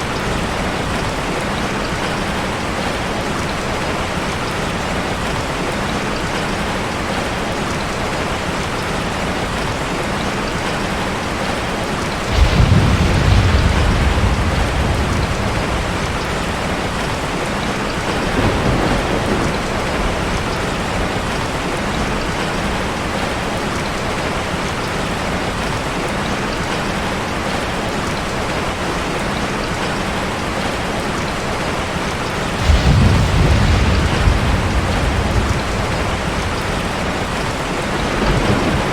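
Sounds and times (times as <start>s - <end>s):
heavy rain on a car: 0.0s - 38.9s
thunder rolling: 12.3s - 23.2s, 32.5s - 38.9s.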